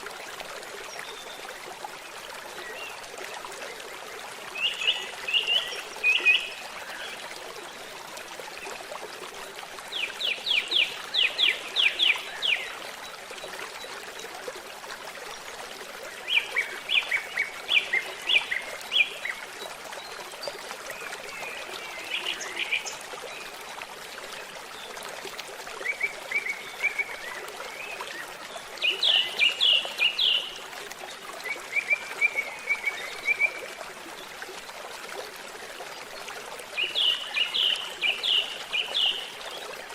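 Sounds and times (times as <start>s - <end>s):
babbling stream: 0.0s - 39.9s
songbirds singing: 25.8s - 30.6s, 36.8s - 39.6s.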